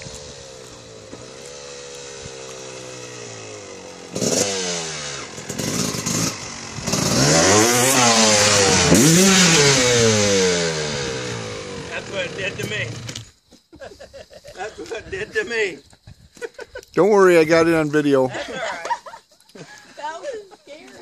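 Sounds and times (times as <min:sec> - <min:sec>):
dirt bike engine revving: 0:00.0 - 0:13.3.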